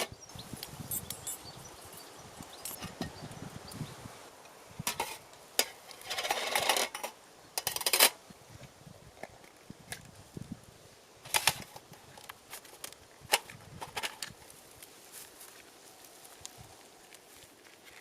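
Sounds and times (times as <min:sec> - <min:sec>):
handling rustles and clinks: 0:00.0 - 0:03.2, 0:11.2 - 0:16.2.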